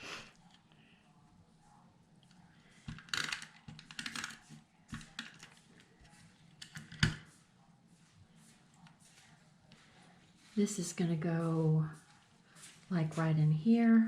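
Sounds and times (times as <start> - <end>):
paper rustling and clicking: 2.8 - 7.3.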